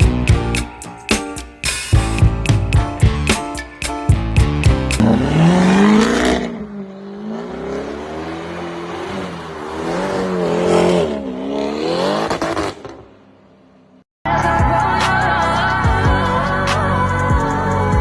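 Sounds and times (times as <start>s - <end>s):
beat-driven music: 0.0s - 5.1s.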